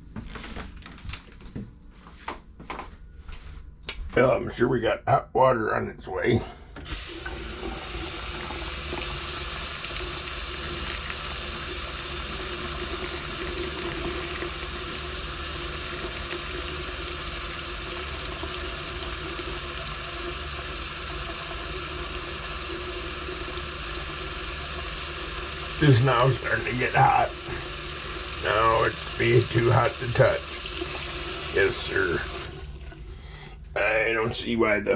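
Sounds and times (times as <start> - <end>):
water running from a faucet: 6.9 - 33.3.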